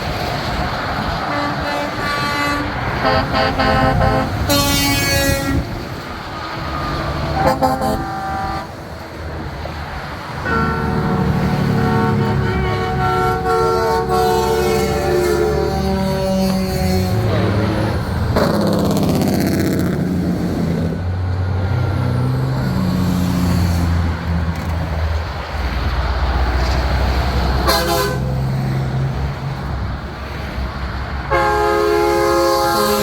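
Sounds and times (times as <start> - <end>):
truck diesel engines droning: 0.0 - 33.0
truck air horns: 1.2 - 6.0, 6.6 - 8.9, 10.4 - 18.8, 27.4 - 28.6, 31.2 - 33.0.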